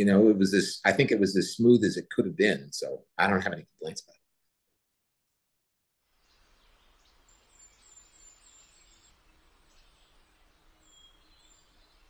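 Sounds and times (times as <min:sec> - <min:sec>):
small bird chirping: 0:06.2 - 0:12.0.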